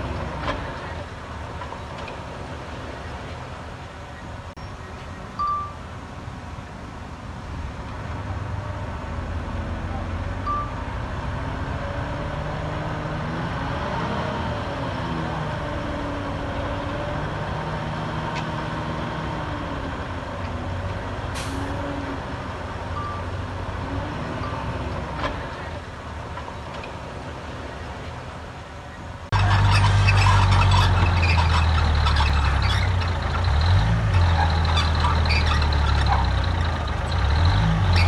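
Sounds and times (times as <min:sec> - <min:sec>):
diesel engine under load: 0:00.0 - 0:38.0
short single beeps: 0:05.4 - 0:05.8, 0:10.4 - 0:10.8, 0:23.0 - 0:23.3
brief air hiss: 0:21.4 - 0:21.7.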